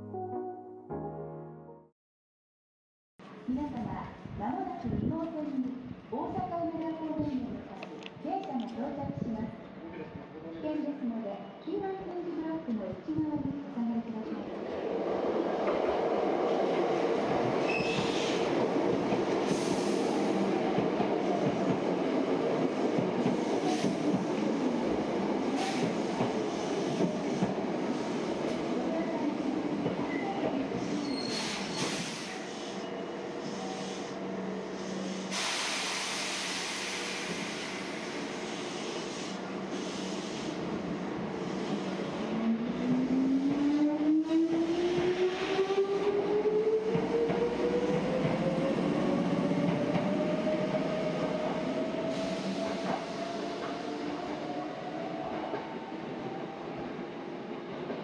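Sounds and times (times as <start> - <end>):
air hiss: 31.3 - 32.8, 34.8 - 40.6.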